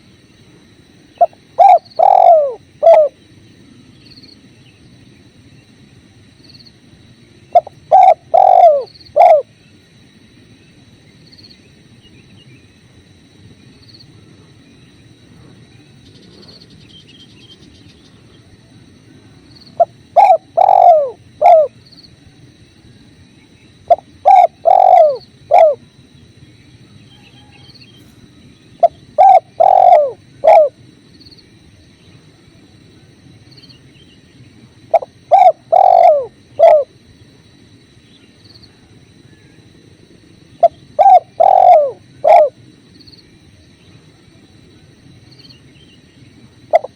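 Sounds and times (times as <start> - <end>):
dove cooing: 1.2 - 3.2, 7.5 - 9.6, 19.8 - 21.8, 23.8 - 26.0, 28.8 - 30.8, 34.9 - 37.0, 40.6 - 42.6, 46.6 - 46.9.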